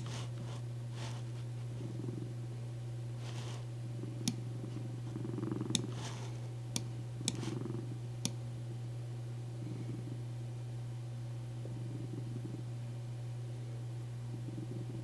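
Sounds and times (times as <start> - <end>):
cat purring: 0.0 - 2.4, 3.2 - 6.5, 7.2 - 8.0
steady low hum: 0.0 - 15.0
sharp clicks: 5.7 - 7.6.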